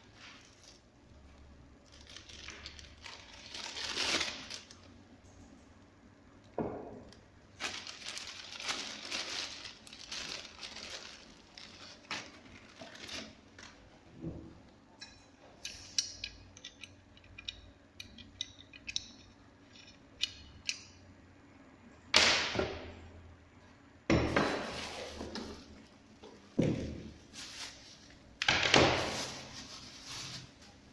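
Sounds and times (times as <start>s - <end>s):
tool parts clicking and rattling: 15.0s - 20.9s.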